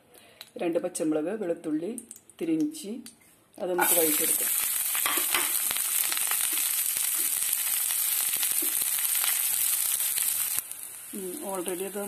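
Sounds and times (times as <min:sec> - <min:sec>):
oil popping and crackling: 0:03.8 - 0:12.0
vegetables sizzling in hot oil: 0:03.8 - 0:12.0.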